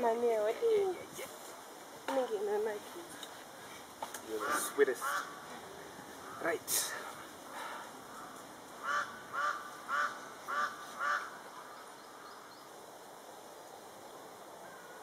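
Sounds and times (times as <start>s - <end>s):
bird calling: 4.2s - 12.7s.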